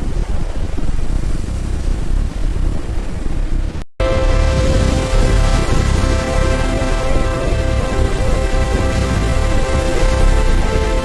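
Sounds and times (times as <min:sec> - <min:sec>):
heavy machinery rumbling: 0:04.0 - 0:11.0.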